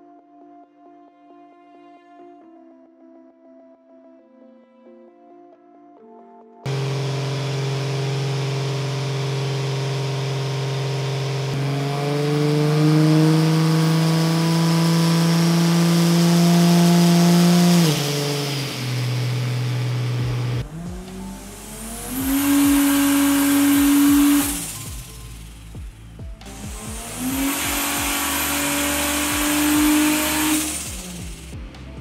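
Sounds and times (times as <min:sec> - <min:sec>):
car engine running on dyno: 0:06.7 - 0:32.0.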